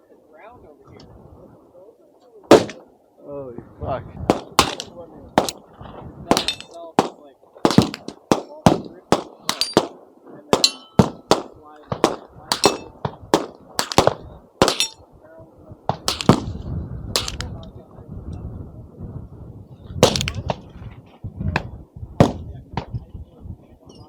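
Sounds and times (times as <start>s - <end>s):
rapid gunfire: 4.3s - 5.6s, 16.1s - 16.5s.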